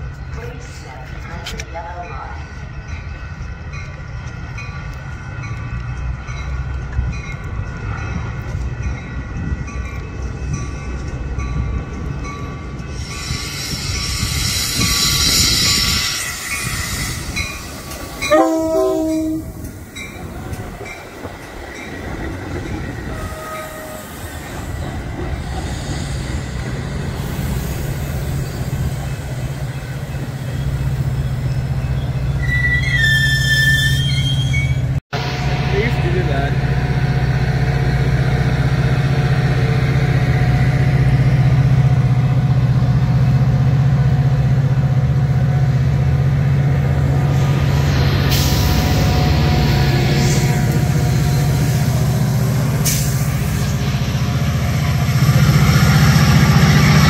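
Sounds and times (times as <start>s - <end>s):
train rumbling: 0.0s - 57.0s
loud hiss: 13.0s - 18.2s, 47.3s - 54.5s
train horn blast: 18.2s - 19.6s, 23.1s - 24.2s.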